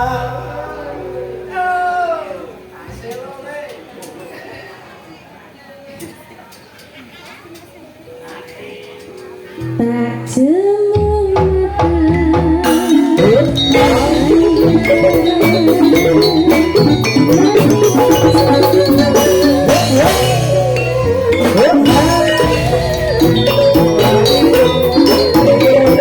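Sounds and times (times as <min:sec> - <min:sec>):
gamelan percussion and drums: 0:11.0 - 0:26.0.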